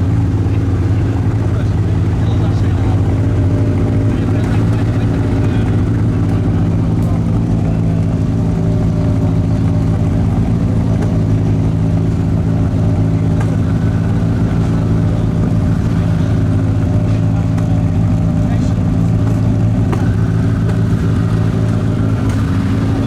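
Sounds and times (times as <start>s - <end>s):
rally car engine idling: 0.0s - 23.0s.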